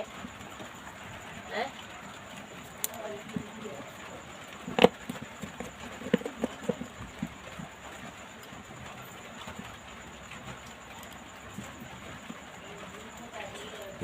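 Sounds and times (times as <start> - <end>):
faint background noise: 0.0 - 14.0
light clicks and taps: 2.8 - 3.5.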